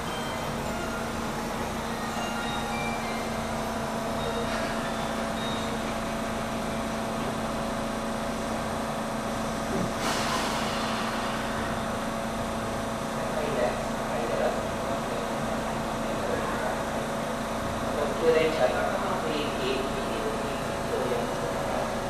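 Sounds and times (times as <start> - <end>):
train equipment humming: 0.0 - 16.1
air release hiss: 10.0 - 12.4.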